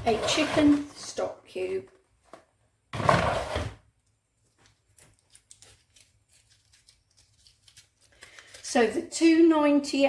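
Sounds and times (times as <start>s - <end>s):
foil wrapper crinkling: 4.9s - 8.8s.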